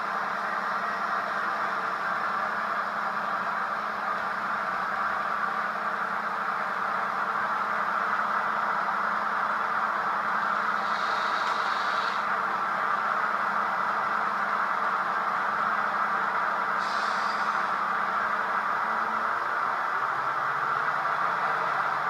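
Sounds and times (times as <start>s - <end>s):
model train motors whirring: 10.4s - 12.6s
high squeal: 16.8s - 17.7s.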